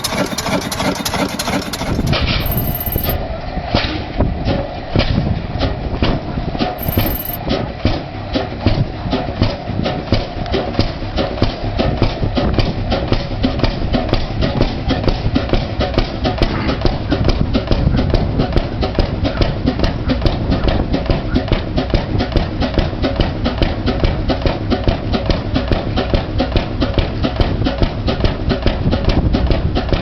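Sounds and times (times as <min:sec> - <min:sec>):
engine running: 0:00.0 - 0:03.2.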